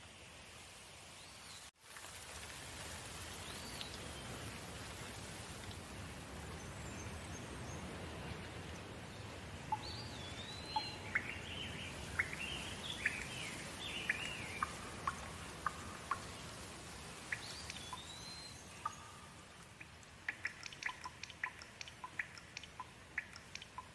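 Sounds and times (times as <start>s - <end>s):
steady rain: 0.0s - 23.9s
bird calling: 9.7s - 16.5s.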